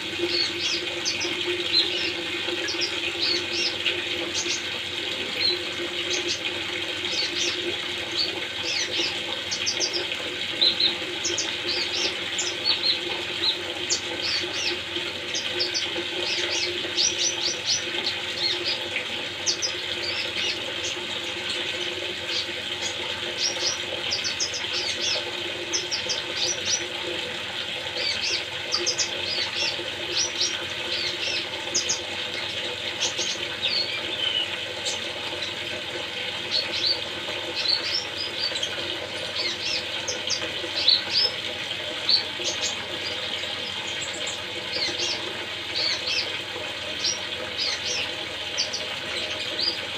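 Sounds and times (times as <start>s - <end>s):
running water: 0.0s - 49.9s.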